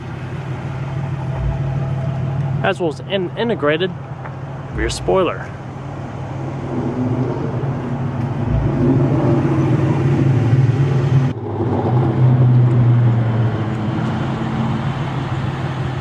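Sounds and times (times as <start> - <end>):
car engine idling: 0.0 - 11.5.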